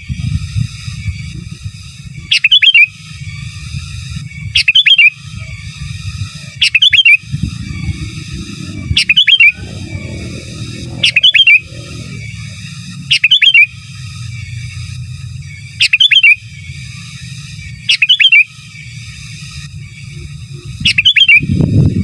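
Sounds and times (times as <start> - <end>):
bird whistling song: 2.2 - 14.0, 15.7 - 18.9, 19.9 - 22.0
steady low rumble: 5.3 - 17.8.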